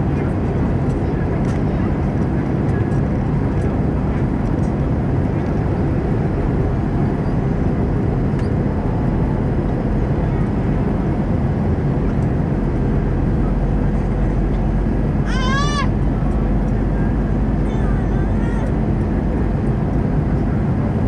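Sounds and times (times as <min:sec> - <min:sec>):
aircraft cabin engine rumble: 0:00.0 - 0:21.0
person crying out: 0:15.3 - 0:15.9.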